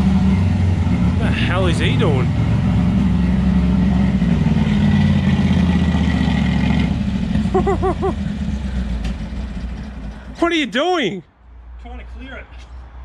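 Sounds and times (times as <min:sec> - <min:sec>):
vehicle engine revving: 0:00.0 - 0:10.4.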